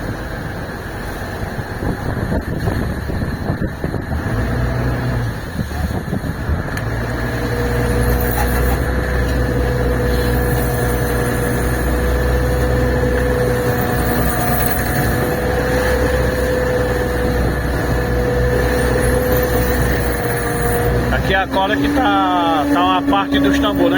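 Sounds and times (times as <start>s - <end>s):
boat engine humming: 0.0s - 23.9s.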